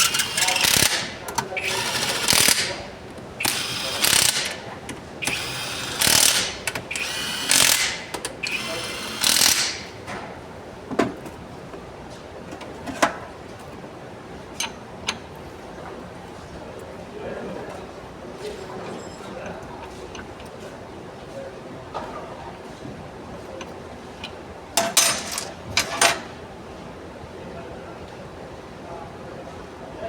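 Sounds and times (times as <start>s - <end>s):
ratchet wrench ratcheting: 0.0s - 2.8s, 3.4s - 4.6s, 5.2s - 9.8s.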